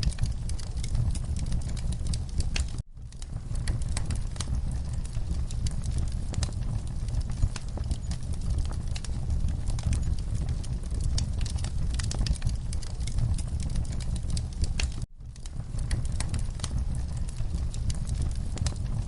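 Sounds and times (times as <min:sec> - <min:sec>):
low fire rumble: 0:00.0 - 0:19.0
wood fire crackling: 0:00.0 - 0:19.0.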